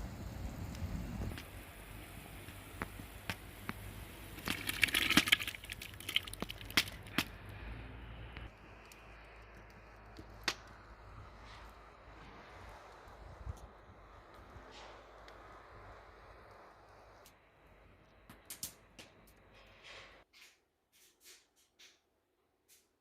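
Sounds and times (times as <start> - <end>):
wood fire crackling and popping: 0.0 - 7.4, 8.4 - 11.4, 18.3 - 19.4.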